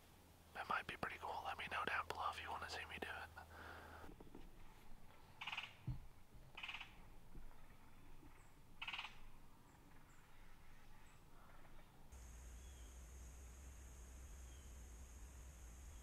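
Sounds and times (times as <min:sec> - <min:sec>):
raspy bird calls: 0:05.4 - 0:05.8, 0:06.5 - 0:07.0, 0:07.6 - 0:11.9.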